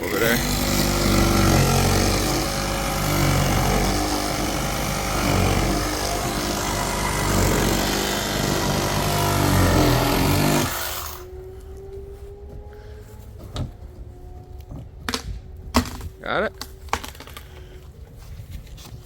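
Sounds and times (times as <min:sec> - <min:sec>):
power saw cutting: 0:00.0 - 0:11.4.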